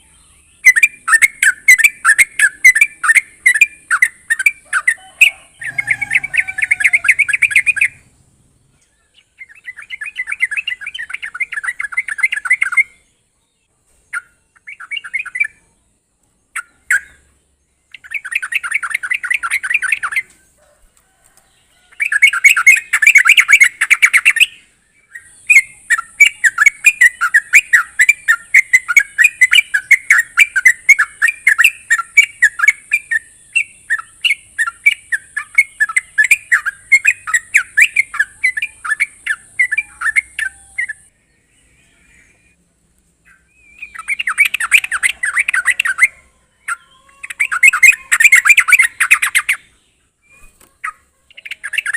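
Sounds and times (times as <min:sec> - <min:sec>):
bird chattering calls: 0:00.0 - 0:13.0, 0:21.9 - 0:41.1, 0:43.2 - 0:51.9.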